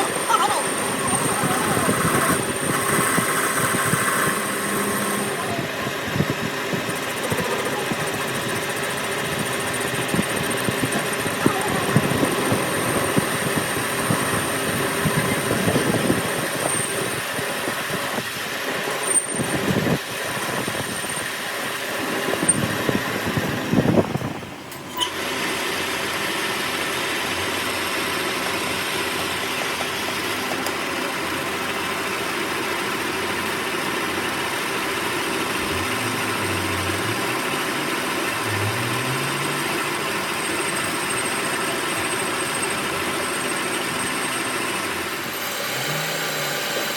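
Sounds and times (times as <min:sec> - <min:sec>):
steady machine hum: 0:00.0 - 0:18.0, 0:18.8 - 0:46.9.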